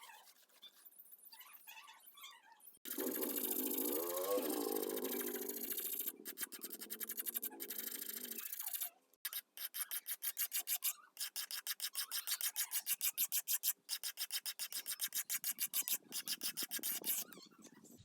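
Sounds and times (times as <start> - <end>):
hand sanding wood: 9.6 - 17.2.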